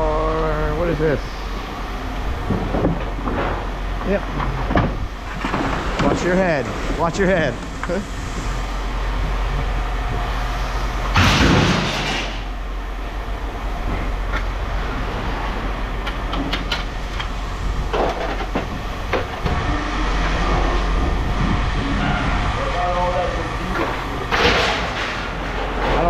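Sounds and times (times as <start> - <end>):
low engine rumble: 0.0 - 26.0
knocks and clanks: 2.4 - 6.9, 11.0 - 12.5, 16.0 - 22.7, 23.6 - 26.0
loud clatter: 11.1 - 12.5, 23.7 - 26.0.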